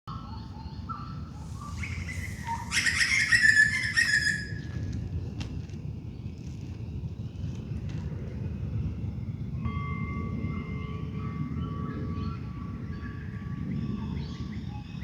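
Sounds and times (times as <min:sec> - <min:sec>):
birds calling in dawn chorus: 0:00.1 - 0:04.8.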